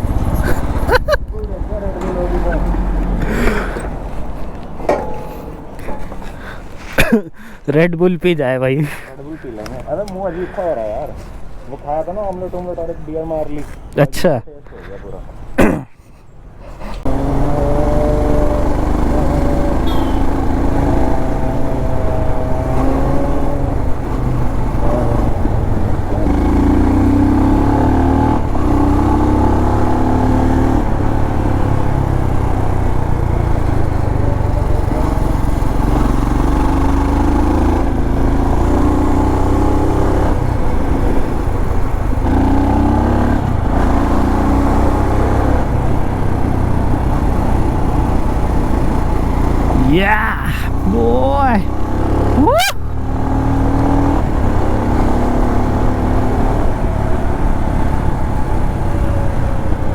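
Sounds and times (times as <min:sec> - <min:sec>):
wind noise: 0:00.0 - 0:04.9
motorcycle engine revving: 0:00.0 - 0:06.8, 0:17.0 - 0:59.9.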